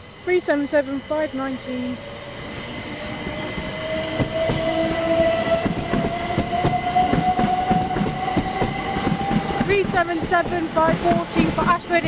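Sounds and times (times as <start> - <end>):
electric train motor whine: 0.0 - 12.0
wheels clattering over rail joints: 0.5 - 12.0.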